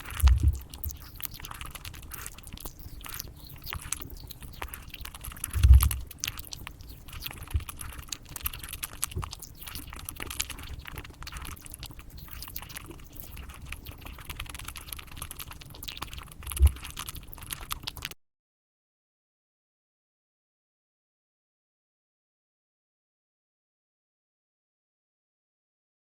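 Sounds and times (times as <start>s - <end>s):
chocolate being bitten and chewed: 0.0s - 18.2s.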